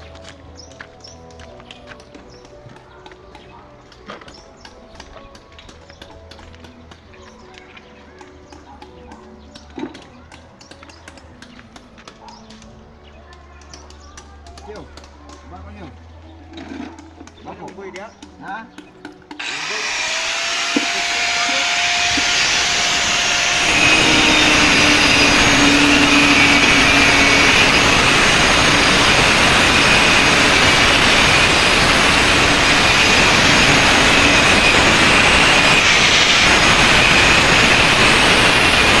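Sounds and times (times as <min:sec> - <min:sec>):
loud machine running: 0:19.4 - 0:39.0.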